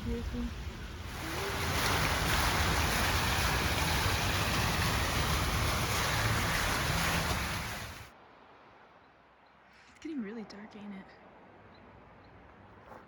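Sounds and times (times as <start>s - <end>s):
loud rushing noise: 0.5s - 8.1s.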